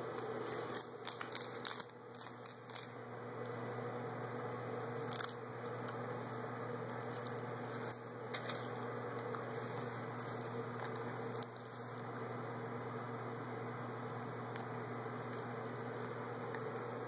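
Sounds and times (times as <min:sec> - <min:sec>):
steady electrical hum: 0:00.0 - 0:17.0
chewing on seaweed: 0:04.4 - 0:12.3.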